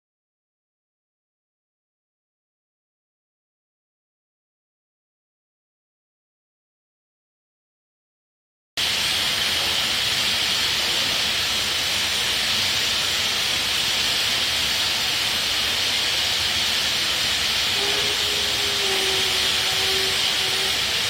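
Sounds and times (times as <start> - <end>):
steam locomotive hissing: 8.8 - 21.0.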